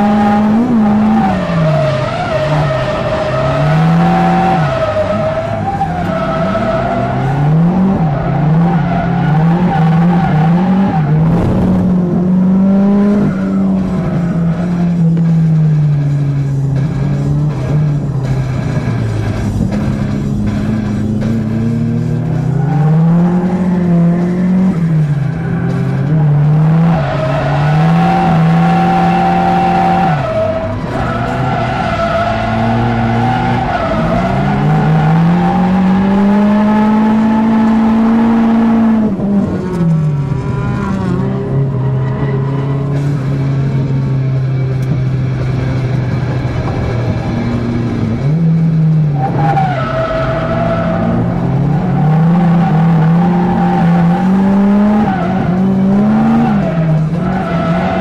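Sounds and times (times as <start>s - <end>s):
car engine revving: 0.0s - 58.0s
tyre squeal: 40.5s - 43.4s.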